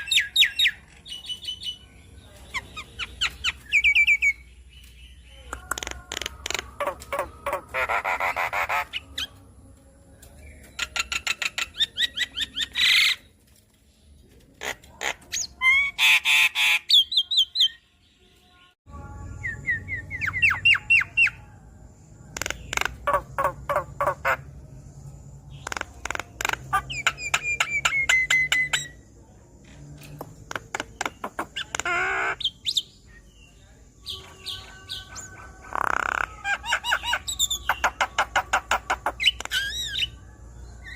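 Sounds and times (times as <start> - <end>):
myna bird chattering song: 0.0 - 9.5, 10.3 - 13.4, 14.6 - 17.8, 19.4 - 21.4, 22.2 - 24.6, 25.5 - 29.1, 30.0 - 40.9.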